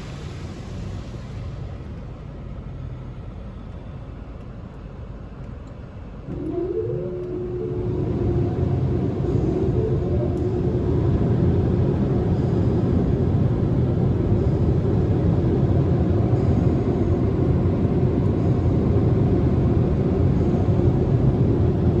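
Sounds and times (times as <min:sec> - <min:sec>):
car wash machinery rumbling: 0:06.2 - 0:22.0
faint steady hum: 0:06.2 - 0:22.0.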